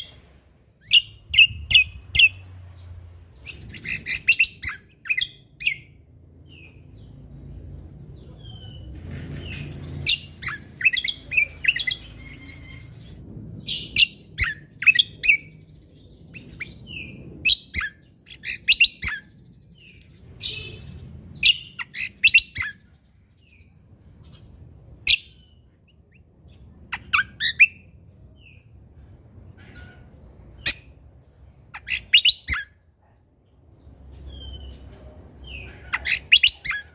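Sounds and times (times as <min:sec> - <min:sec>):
songbird chirping and whistling: 0:00.0 - 0:06.8, 0:09.6 - 0:15.6, 0:16.2 - 0:22.9, 0:25.0 - 0:26.2, 0:26.9 - 0:27.9, 0:31.7 - 0:32.8, 0:34.2 - 0:34.8, 0:35.4 - 0:36.9
faint low rumble: 0:00.0 - 0:31.9.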